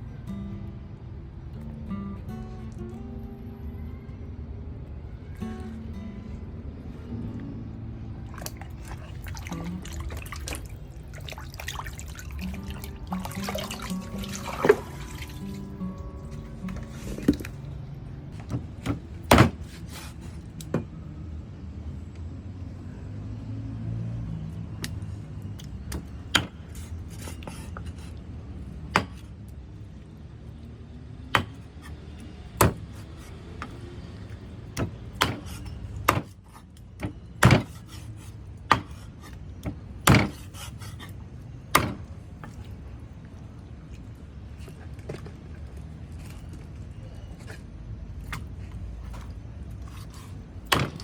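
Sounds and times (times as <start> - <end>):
knife chopping on wooden board: 29.0 - 29.2, 31.4 - 32.0, 34.8 - 36.4, 38.7 - 39.0, 40.1 - 40.7.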